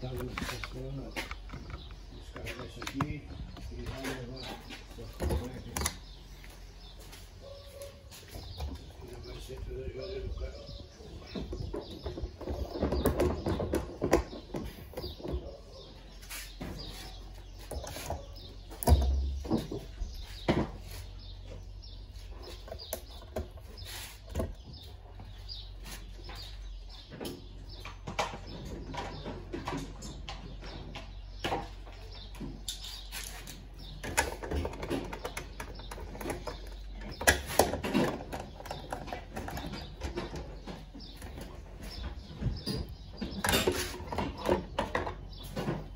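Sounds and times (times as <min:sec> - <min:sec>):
clicks and knocks handling parts: 0:00.0 - 0:06.2
birds chirping: 0:00.0 - 0:45.9.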